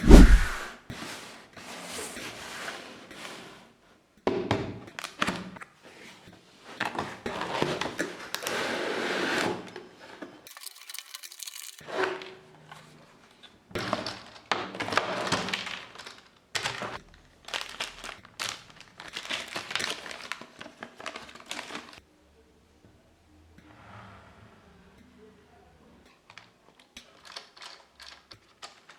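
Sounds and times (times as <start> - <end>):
plastic and cardboard crinkling: 10.5 - 11.8, 17.5 - 22.0, 27.2 - 28.9.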